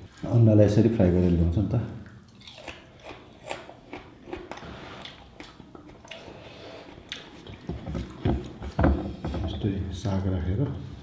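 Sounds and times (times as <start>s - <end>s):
wet chewing and mouth clicks: 1.2s - 8.9s.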